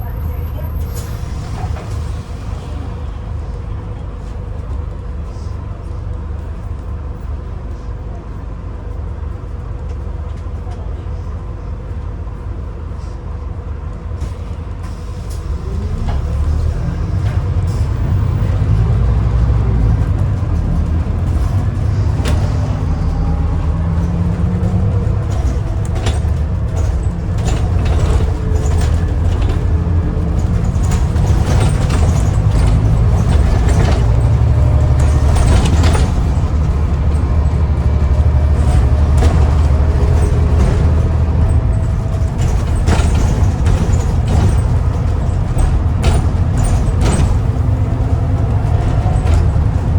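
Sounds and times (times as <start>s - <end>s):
bus diesel engine rumble: 0.0s - 49.9s.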